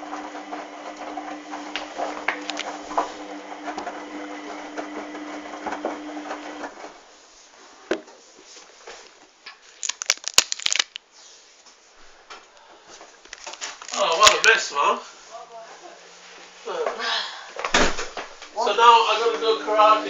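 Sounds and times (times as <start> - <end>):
washing machine motor humming: 0.0 - 6.8, 18.6 - 20.0.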